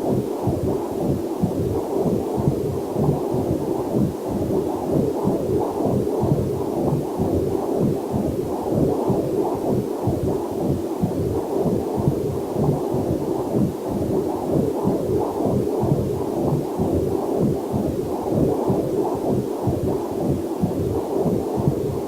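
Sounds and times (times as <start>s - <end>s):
fetal heartbeat whooshing pulses: 0.0s - 22.0s.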